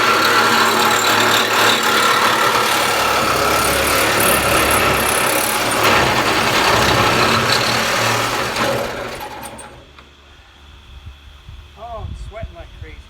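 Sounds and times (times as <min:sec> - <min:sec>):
power tool cutting sheet metal: 0:00.0 - 0:10.0.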